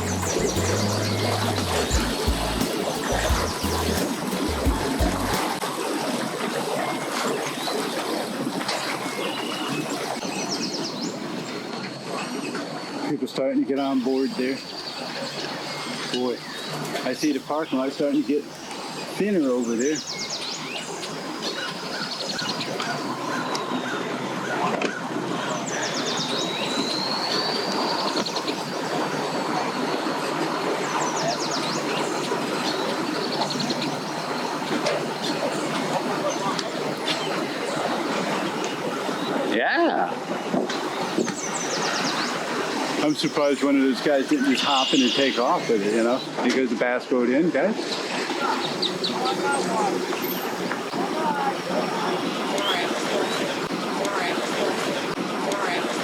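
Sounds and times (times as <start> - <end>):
small birds chirping: 0.0 - 5.5, 13.8 - 24.1, 25.4 - 30.0, 30.8 - 39.4, 40.7 - 46.4, 47.8 - 55.2
outdoor background rumble: 0.0 - 5.6
steady rushing water-like noise: 0.0 - 56.0.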